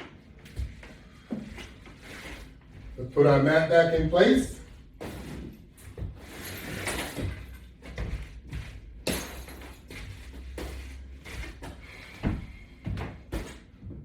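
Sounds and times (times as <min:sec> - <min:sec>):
exercise mat shuffling: 0:00.3 - 0:06.6, 0:07.4 - 0:09.1, 0:09.7 - 0:13.8
mat thumps and knocks: 0:07.2 - 0:14.0.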